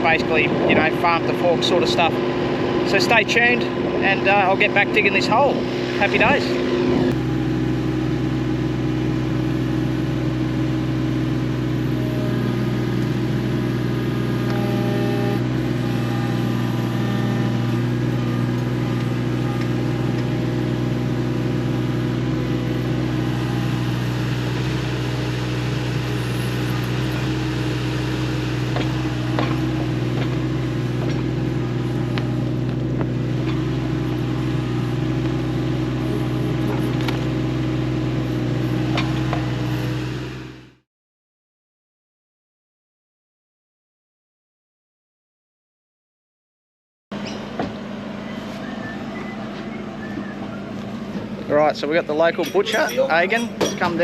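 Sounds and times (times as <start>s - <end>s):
excavator diesel engine running: 0.0s - 40.8s, 47.1s - 54.0s.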